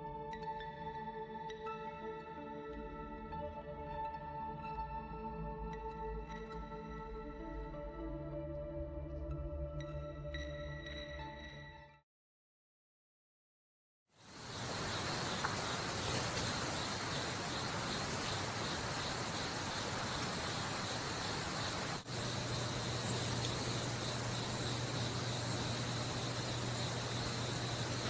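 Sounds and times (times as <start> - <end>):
insects chirping: 14.2 - 28.0
steady hiss: 14.2 - 28.0
low steady hum: 14.6 - 28.0.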